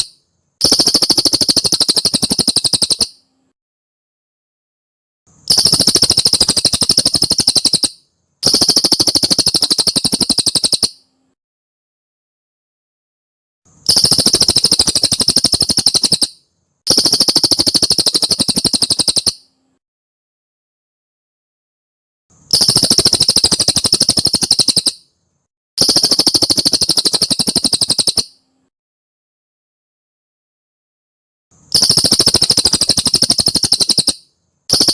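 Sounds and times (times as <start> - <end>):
bird trilling high chirps: 0.0 - 3.2, 5.5 - 11.1, 13.9 - 19.5, 22.5 - 25.1, 25.8 - 28.4, 31.7 - 34.9.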